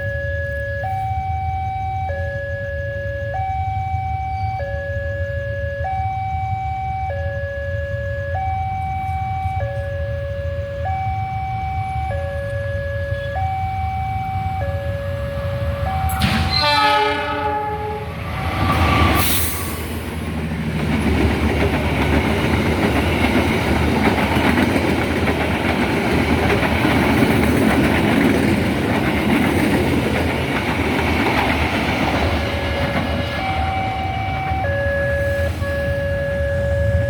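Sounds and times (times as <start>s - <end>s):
two-tone warning signal: 0.0s - 20.1s, 32.4s - 37.0s
train coaches rumbling and clacking: 0.0s - 37.0s
locomotive horn: 12.3s - 20.1s, 32.6s - 37.0s.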